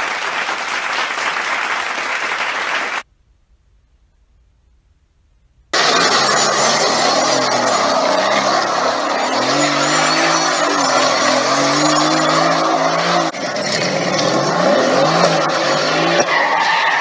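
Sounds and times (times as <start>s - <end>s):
car engine revving: 5.8s - 17.0s
road noise rushing: 5.8s - 17.0s
tyres skidding and squealing: 5.8s - 17.0s.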